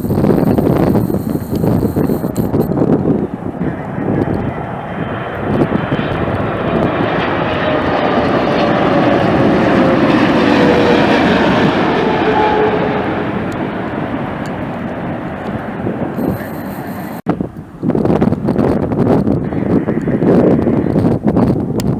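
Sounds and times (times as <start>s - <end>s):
whine sliding down in pitch: 0.0s - 2.7s, 6.6s - 14.6s, 16.1s - 17.2s
jet airliner passing: 0.0s - 21.8s.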